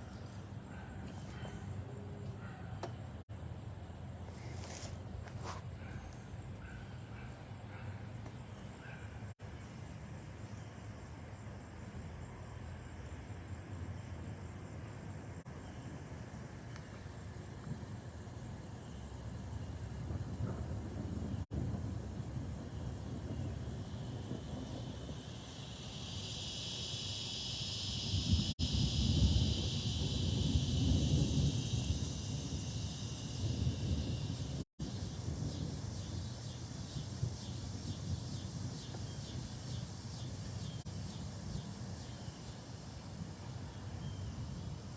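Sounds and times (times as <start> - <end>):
steady high hiss: 0.0 - 44.9
rushing storm wind: 17.2 - 26.6, 27.6 - 38.8.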